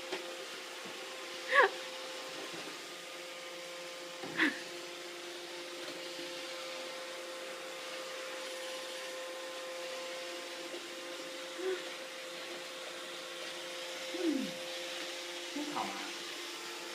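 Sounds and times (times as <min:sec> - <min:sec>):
robot vacuum humming: 0:00.0 - 0:16.9.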